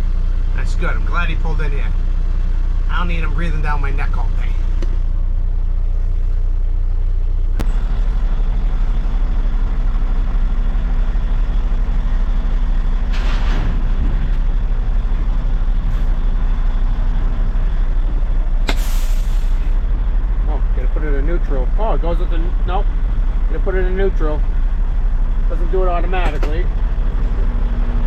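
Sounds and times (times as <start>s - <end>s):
truck diesel engine running: 0.0s - 28.0s
air brake hisses: 18.7s - 19.8s.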